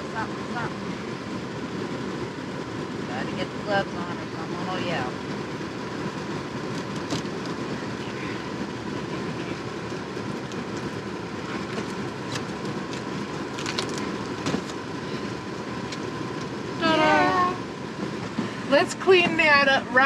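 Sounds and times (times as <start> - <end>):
faint steady whine: 0.0 - 20.0
vehicle engine rumble: 0.0 - 20.0.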